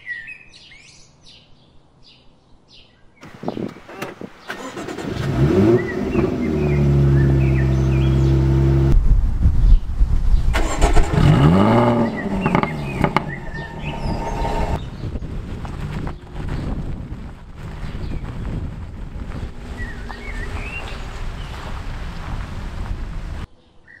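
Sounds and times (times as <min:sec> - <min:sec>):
car engine revving and idling: 0:03.9 - 0:09.0, 0:10.6 - 0:23.5.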